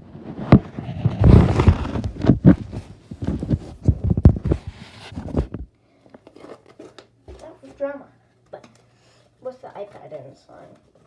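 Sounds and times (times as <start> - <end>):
rubbing on microphone: 0.0 - 5.7
handling knocks and thumps: 0.5 - 5.7, 6.3 - 7.8.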